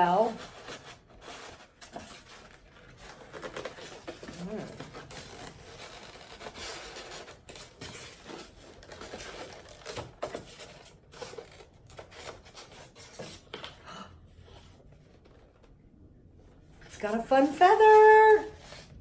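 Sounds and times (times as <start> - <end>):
packaging rustling and crinkling: 0.1 - 13.7.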